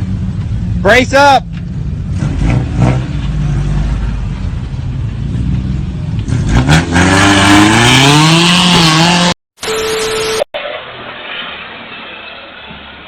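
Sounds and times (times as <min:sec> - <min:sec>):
vehicle engine revving: 0:01.6 - 0:09.4.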